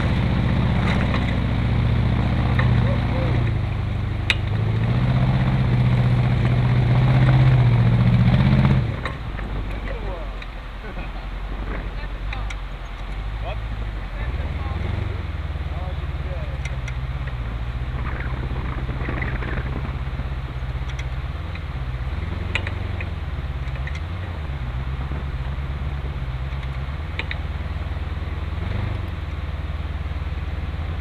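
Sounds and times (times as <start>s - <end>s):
engine running at low revs: 0.0s - 31.0s
sharp clicks: 20.8s - 21.7s, 26.5s - 27.4s.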